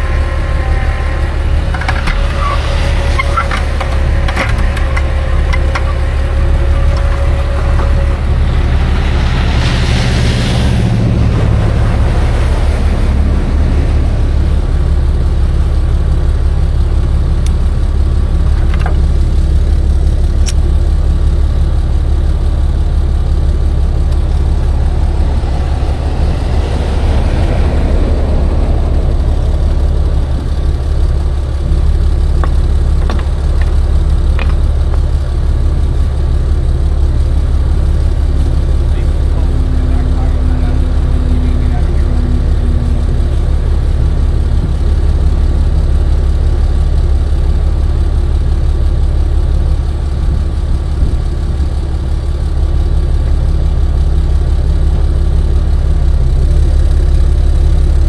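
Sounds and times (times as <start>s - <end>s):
truck engine humming: 0.0s - 58.0s
hissing rush: 23.1s - 46.2s.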